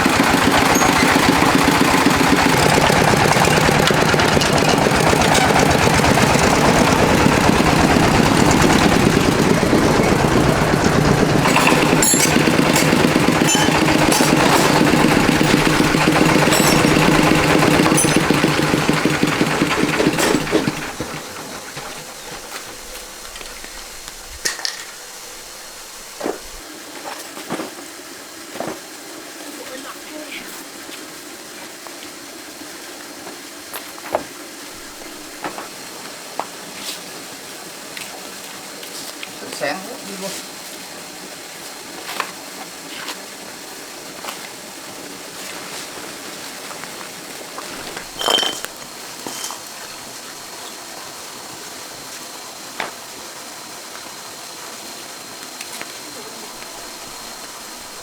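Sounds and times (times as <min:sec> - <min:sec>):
tractor diesel engine chugging: 0:00.0 - 0:23.1
sharp knocks: 0:06.6 - 0:21.2.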